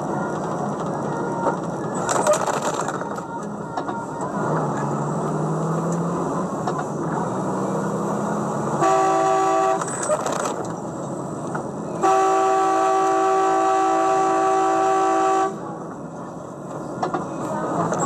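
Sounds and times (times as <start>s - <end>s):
vehicle and road noise: 0.0s - 18.0s
multi-tone vehicle horn: 8.7s - 10.2s, 11.9s - 15.7s.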